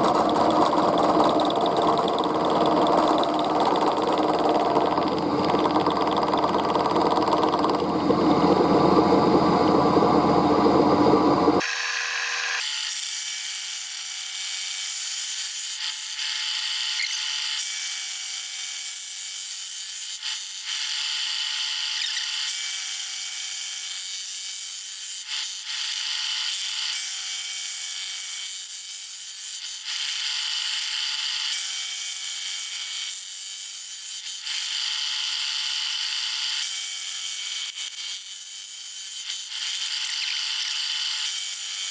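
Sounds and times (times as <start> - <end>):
machine tool running: 0.0 - 12.7
whine cutting steel: 0.0 - 12.7.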